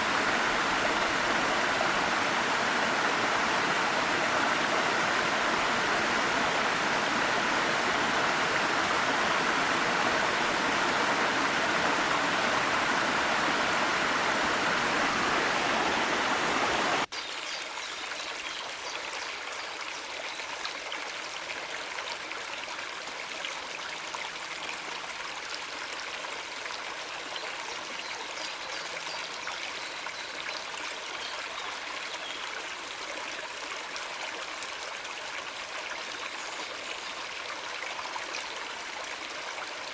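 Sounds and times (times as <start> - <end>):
stream and waterfall rushing: 0.0 - 17.9.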